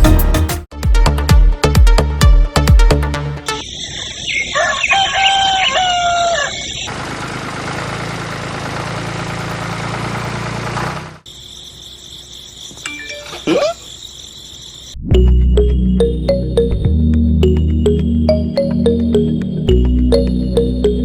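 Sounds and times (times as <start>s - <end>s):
rooster crowing: 4.2s - 6.9s.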